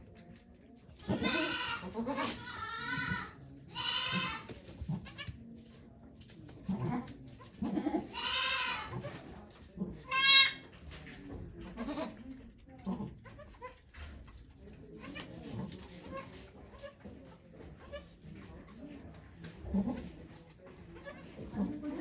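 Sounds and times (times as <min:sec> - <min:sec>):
goat bleating: 0:01.0 - 0:05.3, 0:07.6 - 0:09.1, 0:10.0 - 0:10.6.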